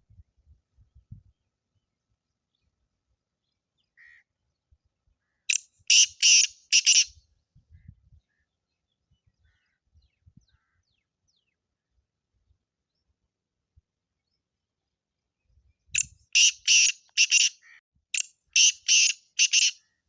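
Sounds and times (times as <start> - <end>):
bird giving harsh grating call: 5.9 - 7.1, 16.4 - 17.8, 18.6 - 19.8.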